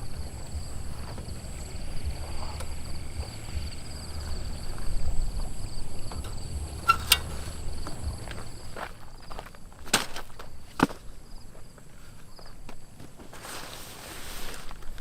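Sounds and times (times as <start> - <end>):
low rumble: 0.0 - 9.2
insects trilling: 0.0 - 12.7.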